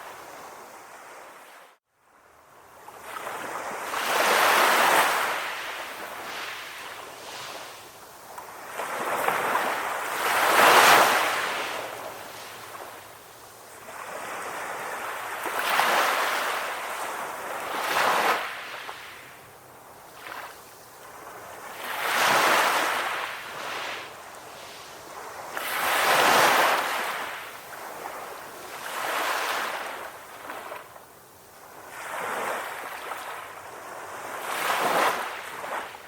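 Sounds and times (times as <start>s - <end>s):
sea waves breaking: 20.2s - 30.9s.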